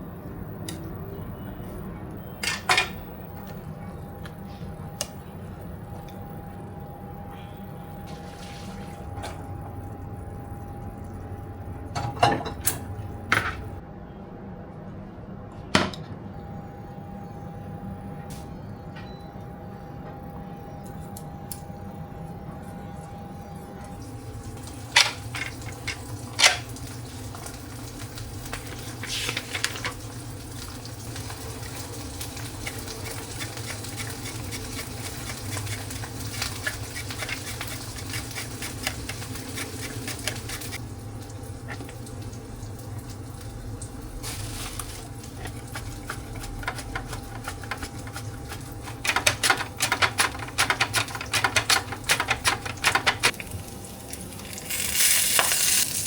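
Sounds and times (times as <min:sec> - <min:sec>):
steady low hum: 0:00.0 - 0:55.8
utensil clicking and scraping: 0:45.4 - 0:53.4.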